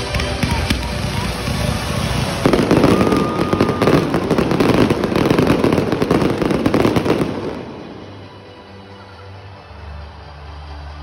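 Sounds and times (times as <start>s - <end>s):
fireworks popping and crackling: 0.0s - 8.3s
firework whistle: 0.2s - 8.0s.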